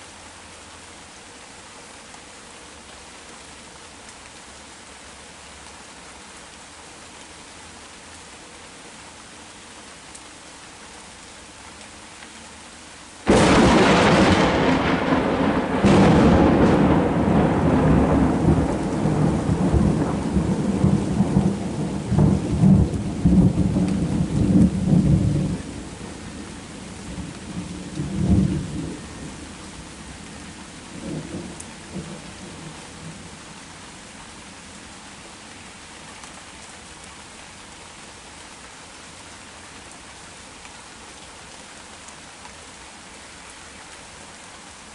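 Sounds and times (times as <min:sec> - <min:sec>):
heavy rain: 0:00.0 - 0:44.9
thunderclap: 0:13.3 - 0:21.5
rolling thunder rumble: 0:13.3 - 0:30.2.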